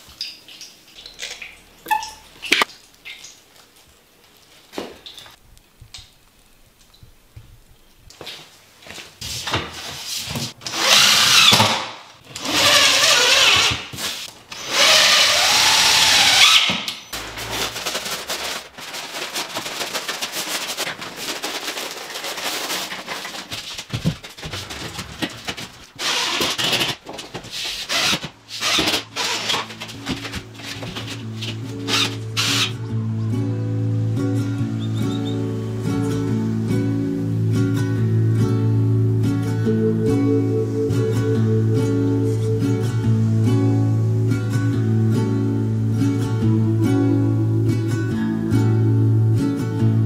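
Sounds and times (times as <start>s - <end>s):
power drill whining: 10.6s - 11.8s, 12.4s - 13.9s, 14.5s - 17.0s
music: 29.7s - 50.0s.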